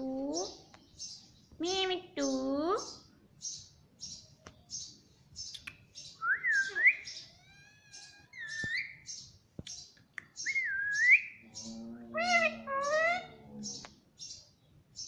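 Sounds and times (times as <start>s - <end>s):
parrot voice-like call: 11.7s - 13.4s.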